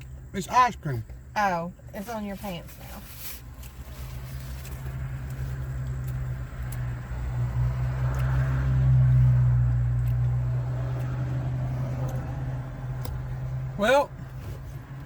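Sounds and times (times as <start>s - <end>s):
car engine idling: 0.0s - 8.2s.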